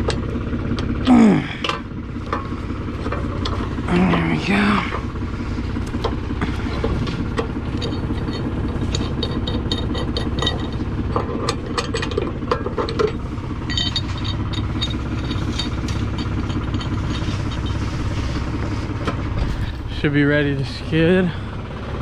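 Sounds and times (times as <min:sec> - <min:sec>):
diesel tractor engine idling: 0:00.0 - 0:22.0
metallic clinks and rattles: 0:05.8 - 0:18.7.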